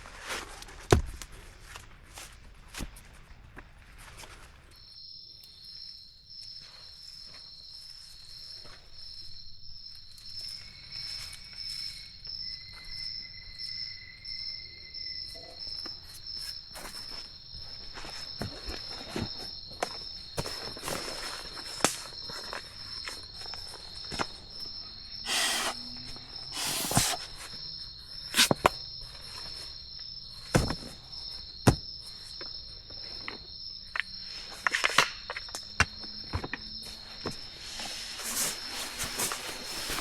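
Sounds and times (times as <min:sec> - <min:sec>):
insects chirring: 0:04.3 - 0:40.0
person rustling material: 0:26.5 - 0:27.5, 0:37.5 - 0:40.0.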